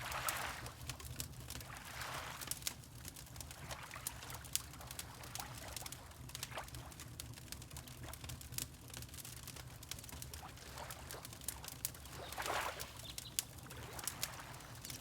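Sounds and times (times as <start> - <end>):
water lapping: 0.0 - 0.9, 1.6 - 2.7, 3.4 - 7.0, 9.8 - 15.0
wood fire crackling and popping: 2.4 - 15.0.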